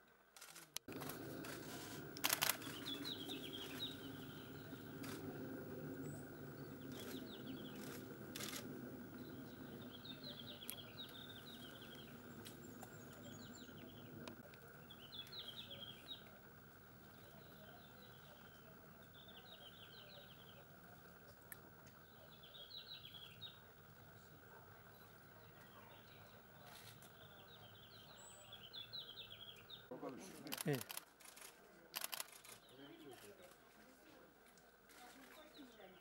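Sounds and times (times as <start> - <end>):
small birds twittering: 0.9 - 29.9
low steady hum: 0.9 - 30.1
sharp clicks: 2.2 - 3.1, 7.8 - 8.7, 30.5 - 32.6.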